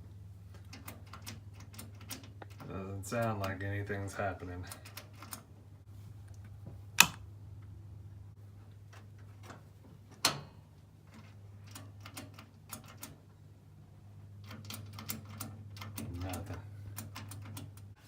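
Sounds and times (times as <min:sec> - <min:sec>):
igniter clicks: 0:06.2 - 0:07.7, 0:08.8 - 0:13.2.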